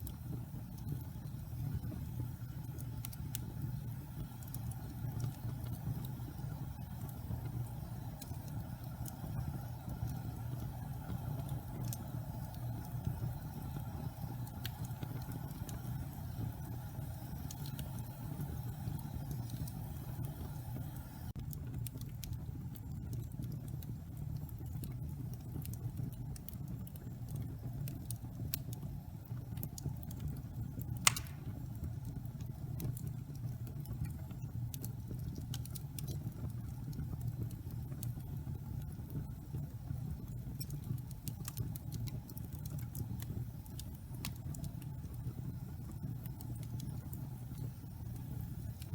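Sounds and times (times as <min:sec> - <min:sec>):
fire burning: 0:00.0 - 0:48.9
logs crackling: 0:31.0 - 0:31.5.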